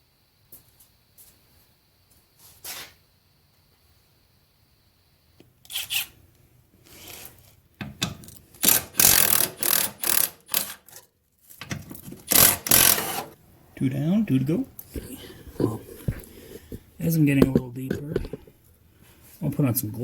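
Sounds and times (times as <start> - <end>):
ratchet wrench clicking and rasping: 8.2 - 10.9, 12.3 - 13.2.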